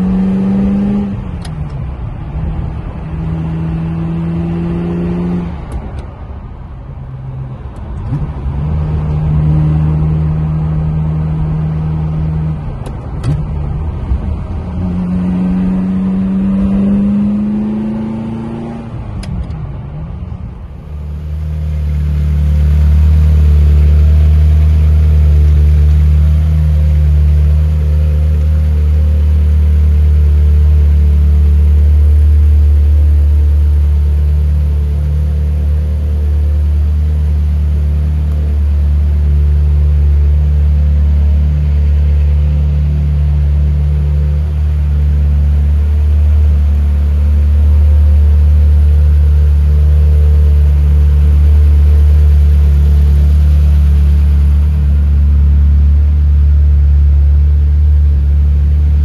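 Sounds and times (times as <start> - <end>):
car engine idling: 19.0 - 59.0.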